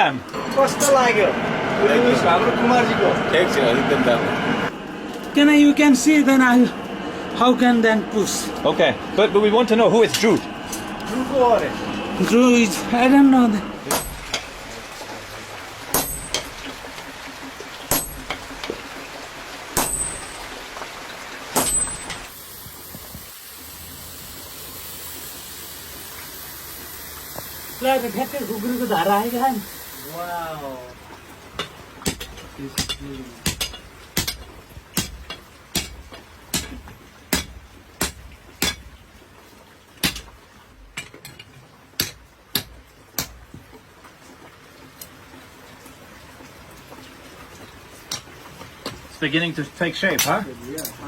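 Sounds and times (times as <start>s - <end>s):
steady hiss: 0.0s - 31.0s
hammer striking metal on anvil: 13.8s - 14.5s, 15.9s - 16.6s, 17.9s - 18.6s, 19.8s - 20.5s, 21.6s - 22.3s, 31.6s - 38.8s
hammer striking metal blade: 13.9s - 14.5s, 15.9s - 16.5s, 21.6s - 22.3s.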